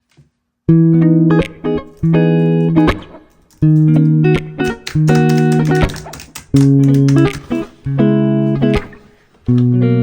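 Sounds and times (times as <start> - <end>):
plucked guitar: 0.7 - 10.0.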